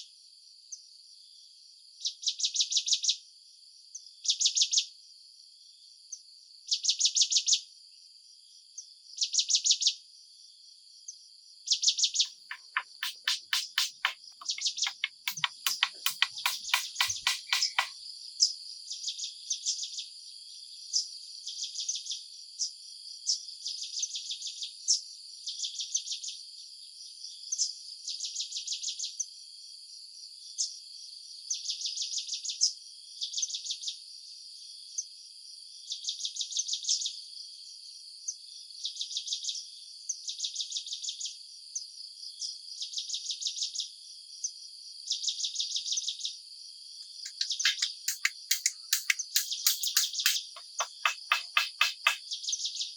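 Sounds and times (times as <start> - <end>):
insects chirping in pulsed trills: 12.4 - 17.9, 47.2 - 52.2.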